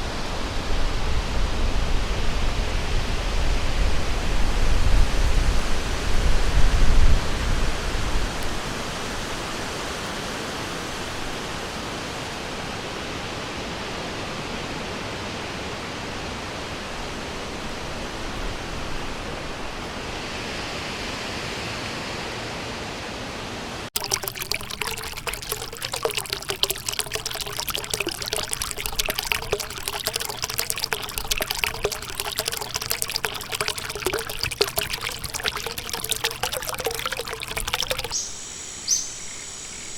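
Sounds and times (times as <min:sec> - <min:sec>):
water trickling over stones: 0:24.0 - 0:38.3.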